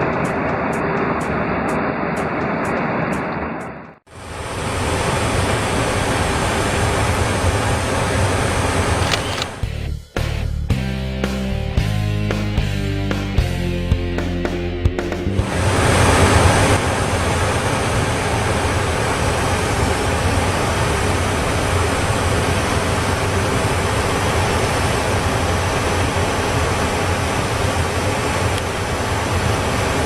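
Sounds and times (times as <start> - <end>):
aircraft roar: 0.0 - 9.8, 15.2 - 30.0.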